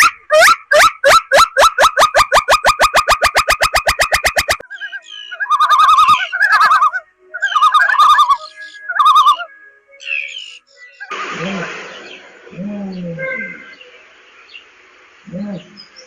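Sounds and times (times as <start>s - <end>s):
rapid pulsed calls: 0.4s - 14.4s
bird warbling song: 1.1s - 11.1s, 11.8s - 16.0s.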